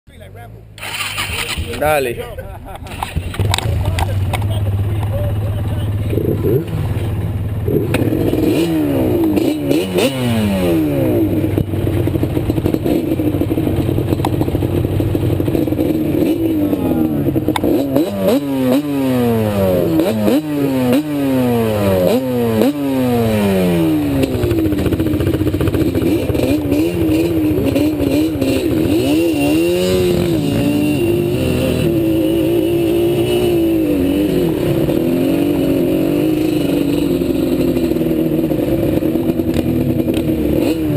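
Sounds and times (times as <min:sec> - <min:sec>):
quad bike engine revving: 0:00.2 - 0:40.9.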